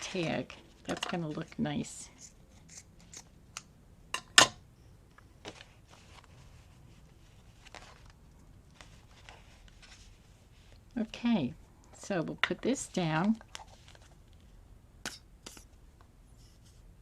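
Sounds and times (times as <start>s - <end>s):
paper rustling: 5.4s - 10.8s, 13.0s - 14.5s.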